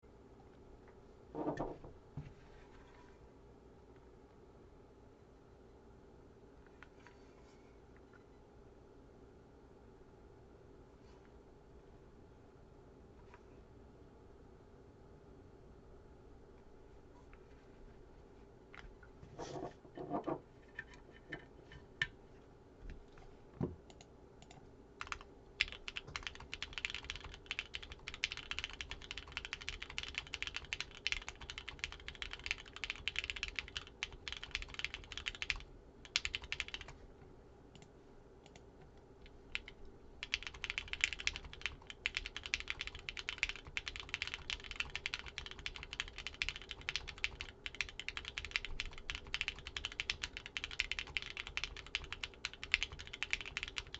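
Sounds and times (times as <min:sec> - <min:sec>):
typing on mechanical keyboard: 0:24.4 - 0:37.0, 0:39.5 - 0:53.9.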